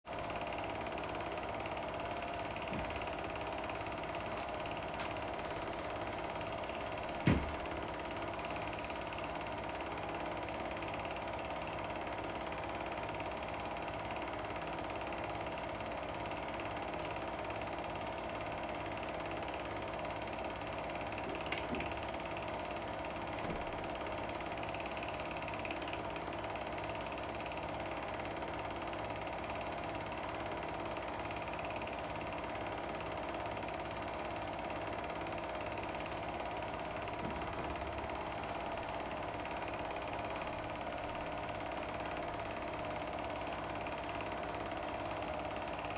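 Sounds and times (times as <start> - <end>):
film projector clattering: 0.1 - 45.9
knock: 7.2 - 7.6.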